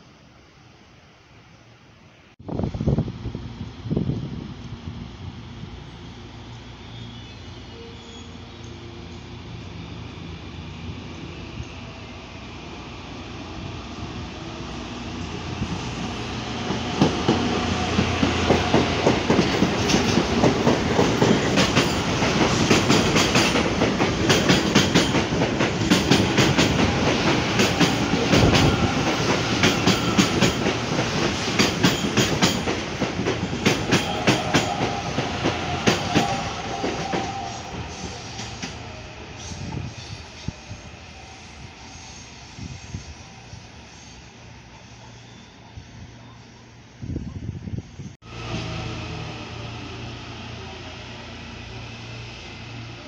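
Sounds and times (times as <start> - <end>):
electric train passing: 0.0 - 53.0
wheels clacking over rail joints: 16.6 - 39.0.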